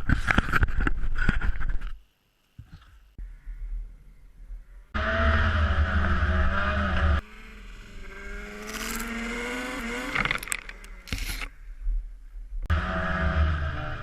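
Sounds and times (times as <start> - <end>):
off-road vehicle engine running: 4.9 - 11.6, 12.6 - 14.0
quieter engine rising in pitch: 5.0 - 11.1.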